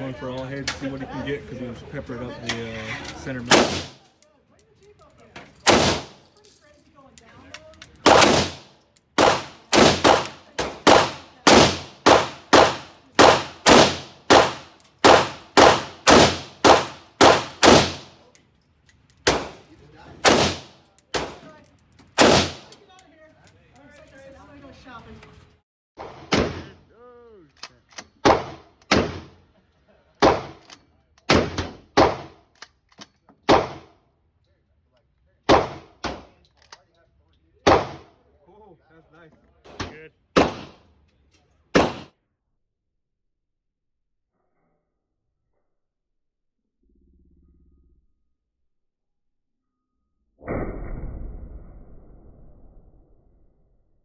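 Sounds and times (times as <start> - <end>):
gunshots with ringing echo: 3.5 - 4.0, 5.6 - 6.2, 8.0 - 18.3, 19.2 - 19.6, 20.2 - 21.5, 22.2 - 22.8, 40.4 - 40.8, 41.8 - 42.1.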